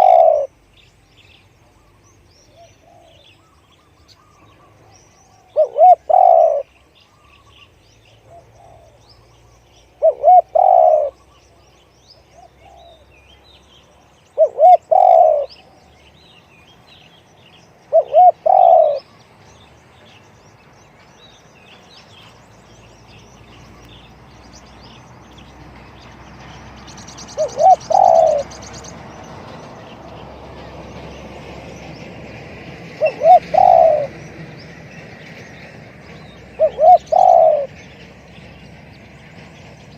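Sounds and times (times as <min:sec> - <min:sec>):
dove cooing: 0:00.0 - 0:00.5, 0:02.6 - 0:03.2, 0:05.3 - 0:06.7, 0:08.2 - 0:09.0, 0:10.0 - 0:11.2, 0:14.4 - 0:15.6, 0:17.9 - 0:19.0, 0:27.4 - 0:28.5, 0:33.0 - 0:34.2, 0:36.6 - 0:37.8
small birds chirping: 0:00.0 - 0:32.1, 0:33.0 - 0:39.9.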